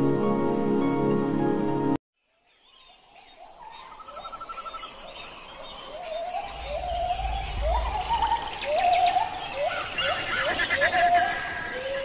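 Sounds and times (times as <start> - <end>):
high bird chirping: 3.6 - 11.4
low rumble: 6.4 - 9.4.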